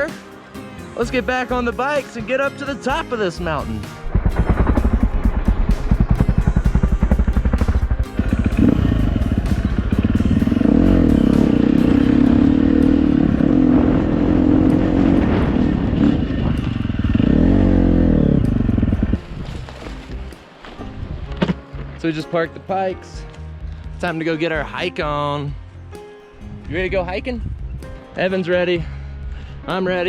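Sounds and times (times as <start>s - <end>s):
dirt bike engine revving: 4.0s - 19.2s.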